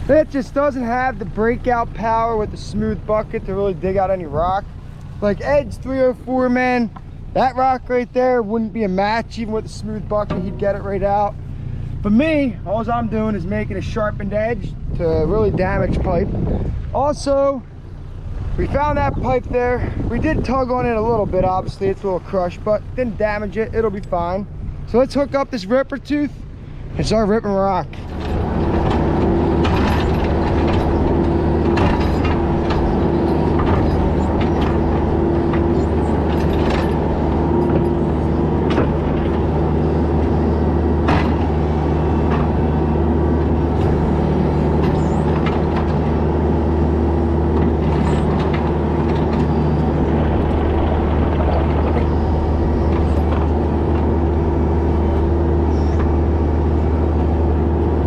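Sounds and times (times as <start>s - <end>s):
diesel engine running: 0.0s - 58.0s
steel clanking and scraping on rock: 28.0s - 39.5s.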